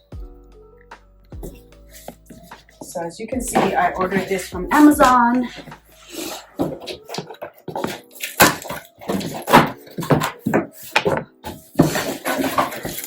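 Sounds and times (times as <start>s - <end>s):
cardboard box being opened: 6.3s - 13.0s.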